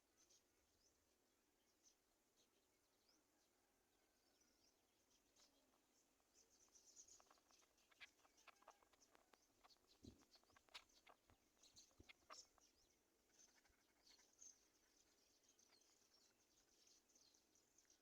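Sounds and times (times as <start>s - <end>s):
high bird chirps: 6.6s - 14.6s.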